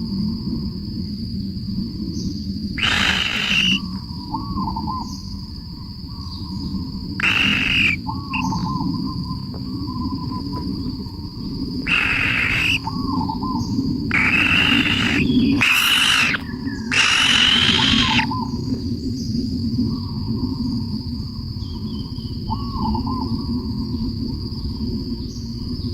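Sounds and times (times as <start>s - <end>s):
high insect drone: 0.0s - 25.9s
harsh bird calls: 2.8s - 4.7s, 7.2s - 8.8s, 11.8s - 18.6s
small repeated chirps: 7.2s - 8.5s.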